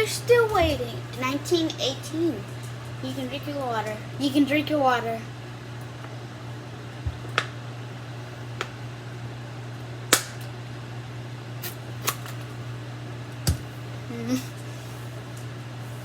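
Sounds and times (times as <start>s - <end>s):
microwave oven humming: 0.0s - 16.0s.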